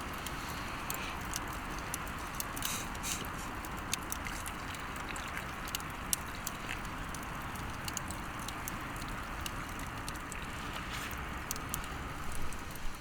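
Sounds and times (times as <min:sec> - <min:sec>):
steady hiss: 0:00.0 - 0:04.6
campfire crackling and popping: 0:00.0 - 0:13.0.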